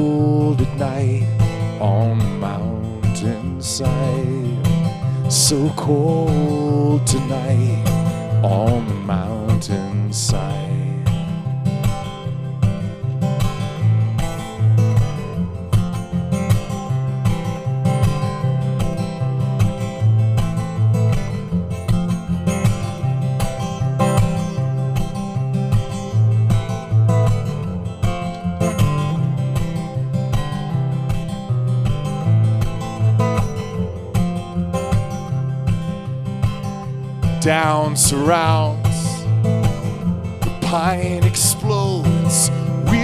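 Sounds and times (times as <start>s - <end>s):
acoustic guitar strumming: 0.0s - 43.0s
low bass notes: 26.1s - 43.0s.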